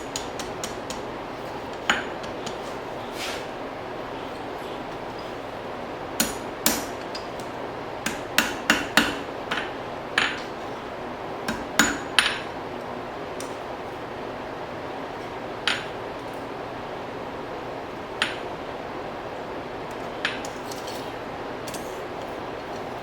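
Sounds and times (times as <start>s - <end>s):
hammer striking steel on anvil: 6.2s - 7.3s, 11.5s - 12.5s.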